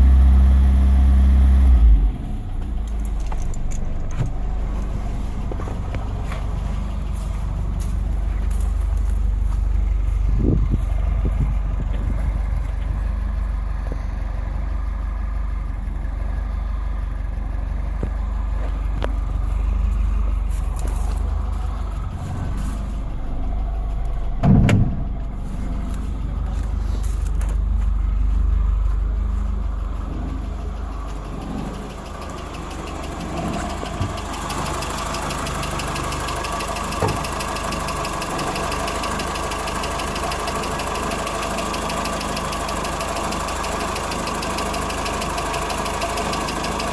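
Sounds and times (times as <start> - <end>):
car engine idling: 0.0 - 46.9
loud knock: 24.4 - 25.0.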